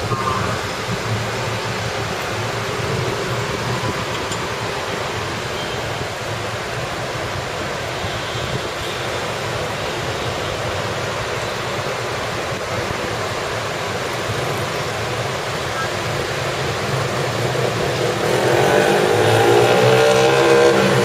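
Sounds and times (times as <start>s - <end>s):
heavy rain pouring: 0.0s - 21.0s
road traffic rumble: 0.0s - 21.0s.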